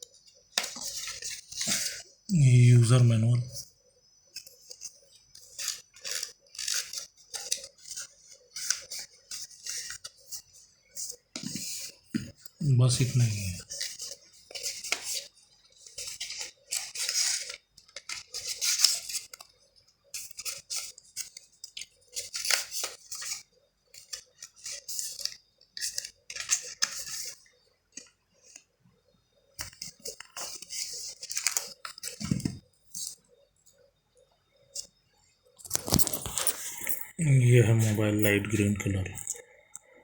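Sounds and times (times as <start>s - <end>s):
packaging crinkling and rustling: 35.6s - 36.9s.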